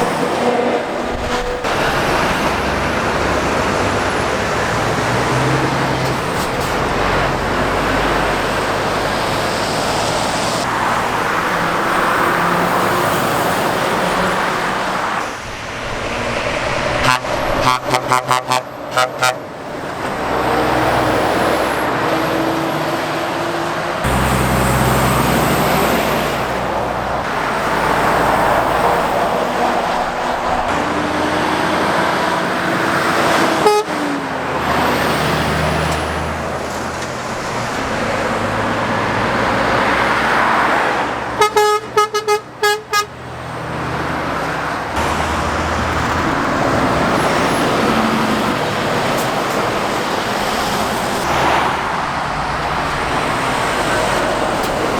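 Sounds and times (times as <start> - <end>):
traffic passing: 0.0 - 54.9
vehicle horn toots: 17.0 - 19.5, 33.5 - 34.0, 41.4 - 43.1.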